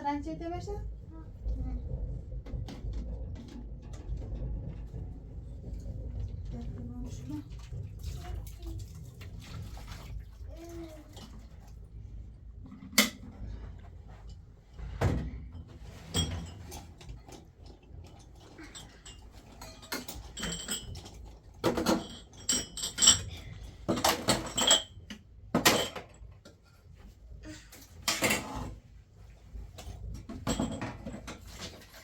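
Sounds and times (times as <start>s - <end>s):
knocks and clinks of handling: 18.6s - 26.2s.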